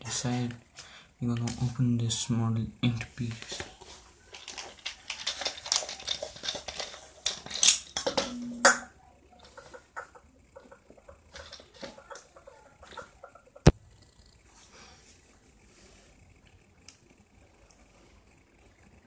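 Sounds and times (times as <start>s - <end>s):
small parts clicking and scraping: 2.9s - 14.5s.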